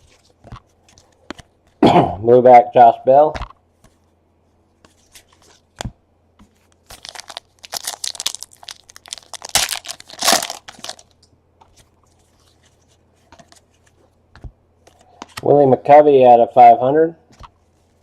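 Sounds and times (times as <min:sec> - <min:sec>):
foil wrapper tearing and crinkling: 0:06.9 - 0:11.1.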